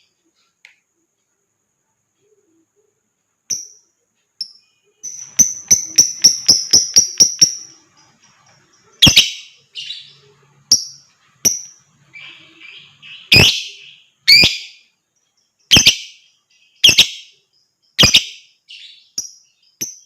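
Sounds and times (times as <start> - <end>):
lovebird chirping: 1.8 - 20.0
lovebird screech: 13.2 - 14.7, 15.7 - 16.1.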